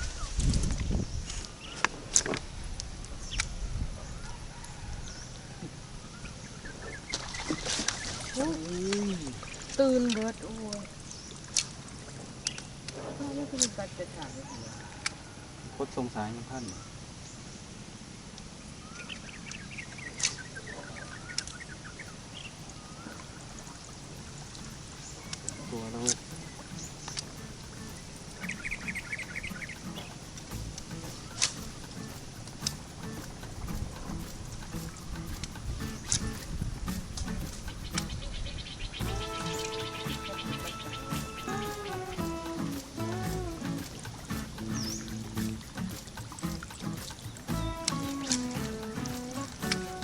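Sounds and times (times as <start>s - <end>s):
bird chirping: 18.8s - 50.0s.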